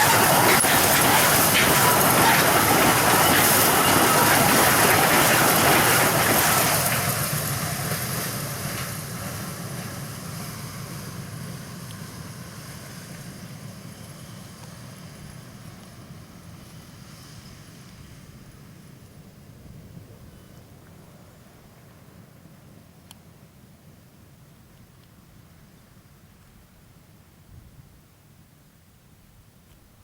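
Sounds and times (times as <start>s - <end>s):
train wheels on track: 0.0s - 22.1s.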